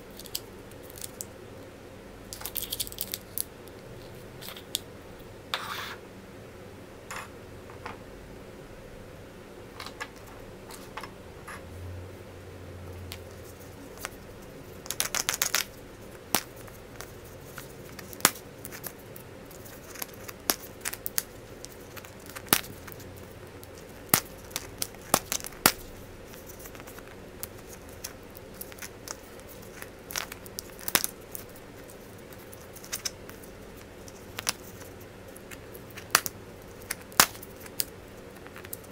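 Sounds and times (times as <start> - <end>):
faint steady hum: 0.0 - 38.9
plastic pieces clicking: 2.4 - 3.5.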